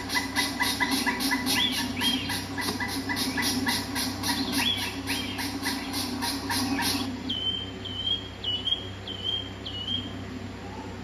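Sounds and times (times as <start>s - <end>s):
harsh repeated bird calls: 0.0s - 11.0s.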